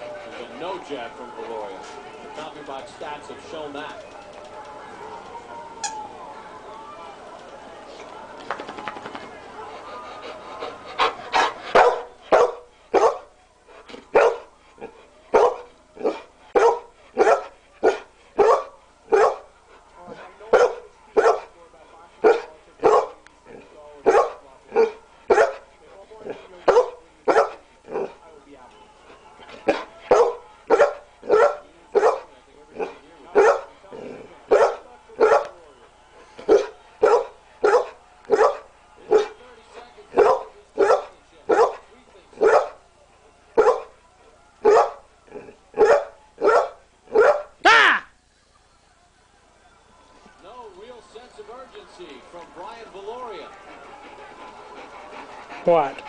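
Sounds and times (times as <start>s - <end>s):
dog barking: 11.4s - 13.3s, 14.1s - 19.5s, 20.5s - 21.5s, 22.2s - 23.2s, 24.0s - 25.6s, 26.7s - 28.1s, 29.7s - 33.7s, 34.5s - 35.6s, 36.5s - 39.4s, 40.2s - 41.8s, 42.4s - 42.8s, 43.6s - 44.0s, 44.6s - 47.6s.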